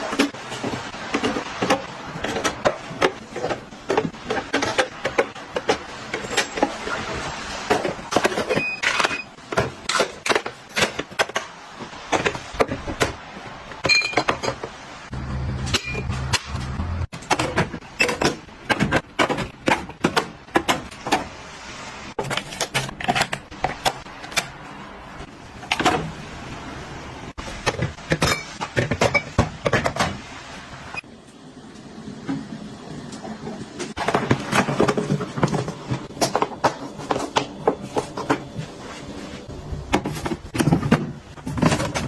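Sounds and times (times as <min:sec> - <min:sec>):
kitchen utensils clinking: 0:00.0 - 0:13.1, 0:13.7 - 0:14.8, 0:27.5 - 0:30.2.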